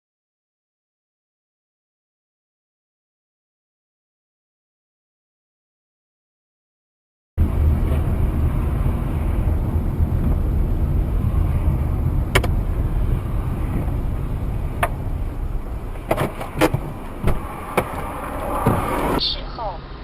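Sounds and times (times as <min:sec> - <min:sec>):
car engine and road rumble: 0:07.4 - 0:20.0.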